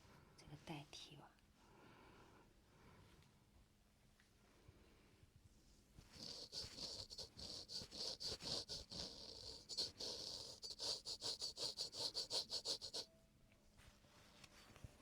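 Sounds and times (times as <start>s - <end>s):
razor scraping skin: 6.2s - 13.1s.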